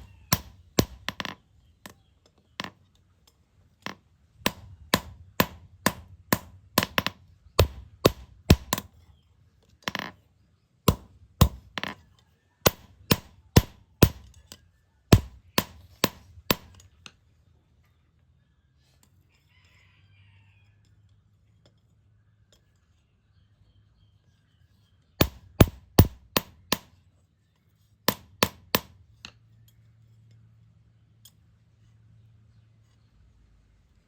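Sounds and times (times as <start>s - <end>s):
hammer striking steel: 4.5s - 8.9s, 10.9s - 12.0s, 12.6s - 14.4s, 15.1s - 16.8s, 25.2s - 26.9s, 28.1s - 29.0s.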